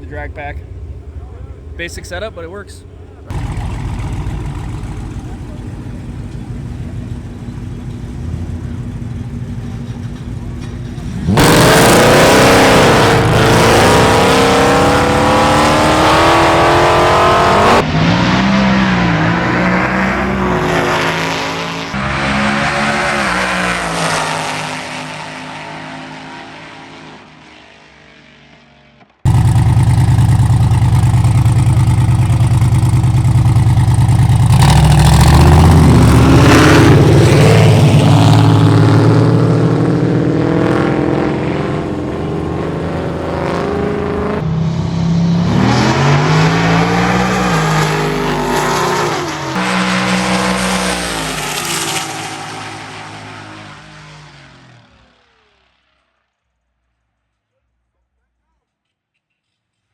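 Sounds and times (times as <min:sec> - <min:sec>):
deep engine drone: 0:00.0 - 0:22.6, 0:29.3 - 0:53.2
cars accelerating at full throttle: 0:03.3 - 0:27.8, 0:29.3 - 0:55.8.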